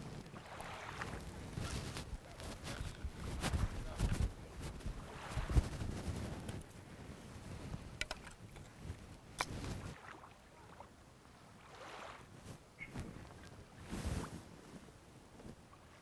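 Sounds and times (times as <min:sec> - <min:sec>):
wind on microphone: 0:00.0 - 0:10.0, 0:11.8 - 0:16.0
waves washing on shore: 0:00.0 - 0:12.4.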